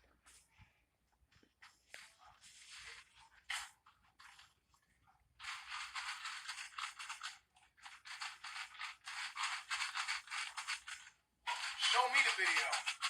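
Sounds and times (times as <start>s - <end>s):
rapid scratchy rubbing: 5.4s - 13.0s.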